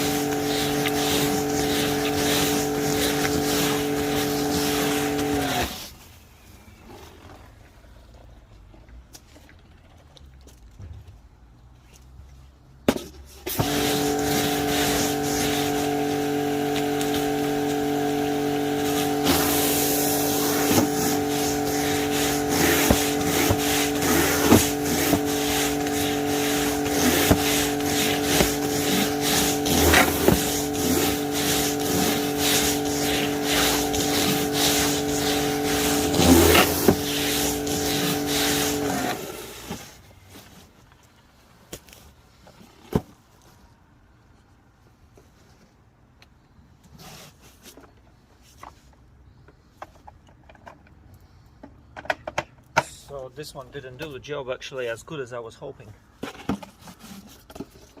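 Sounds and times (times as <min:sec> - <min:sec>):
pressure washer motor hum: 0:00.0 - 0:05.8, 0:13.5 - 0:39.9
water jet spraying: 0:00.0 - 0:05.8, 0:13.5 - 0:39.2.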